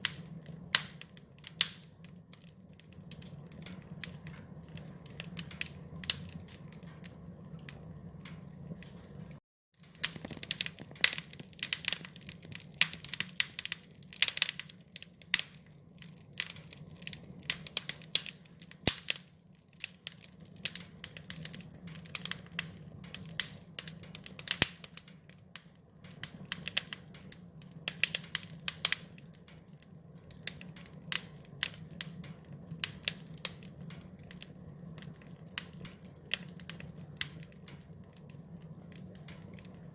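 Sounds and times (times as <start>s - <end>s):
fire pops and snaps: 0.0s - 39.9s
wood fire crackling: 0.0s - 39.9s.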